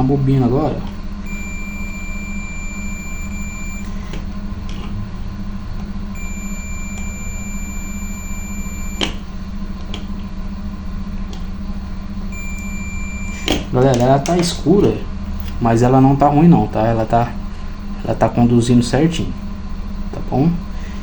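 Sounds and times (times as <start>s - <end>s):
low hum: 0.0s - 21.0s
multimeter beeper tone: 0.0s - 21.0s
click: 0.8s - 1.0s, 6.9s - 7.2s, 8.1s - 10.2s, 15.4s - 15.6s.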